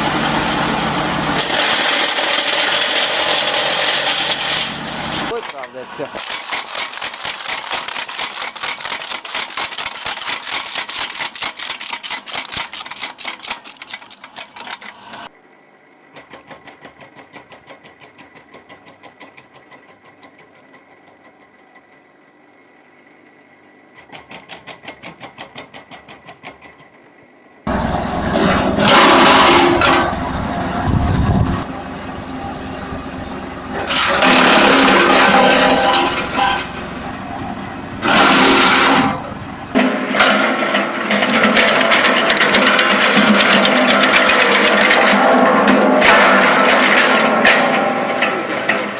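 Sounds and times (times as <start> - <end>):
wood chipper running: 0.0 - 12.8, 27.7 - 48.9.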